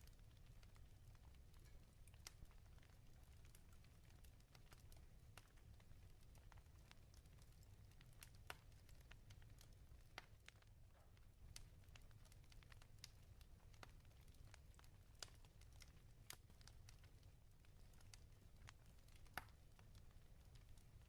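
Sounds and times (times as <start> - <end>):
low fire rumble: 0.0 - 21.0
wood fire crackling: 0.0 - 21.0.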